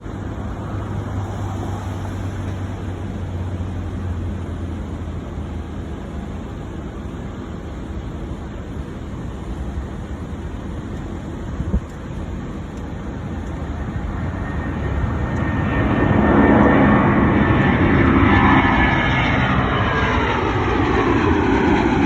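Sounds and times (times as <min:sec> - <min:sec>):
jet engines rumbling: 0:00.0 - 0:22.0.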